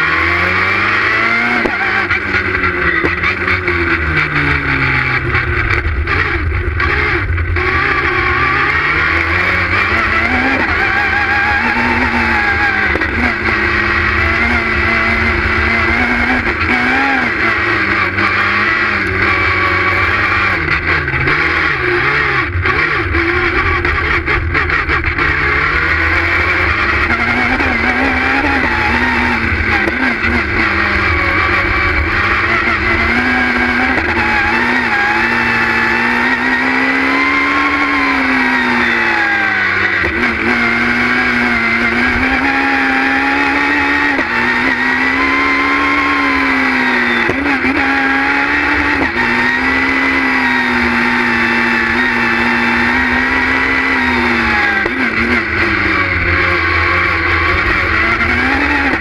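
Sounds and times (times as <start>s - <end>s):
rally car engine revving hard: 0.0s - 59.0s.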